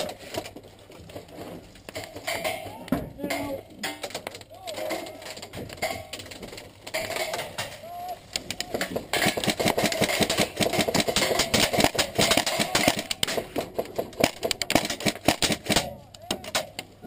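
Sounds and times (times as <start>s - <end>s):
airsoft gunfire: 9.1s - 13.6s, 14.2s - 16.0s.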